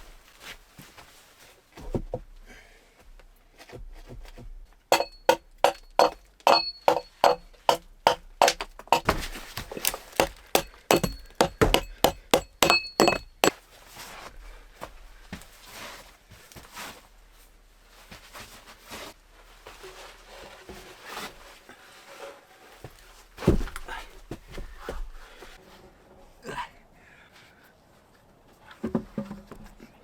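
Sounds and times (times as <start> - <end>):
hand tool hard blows: 4.9 - 13.6.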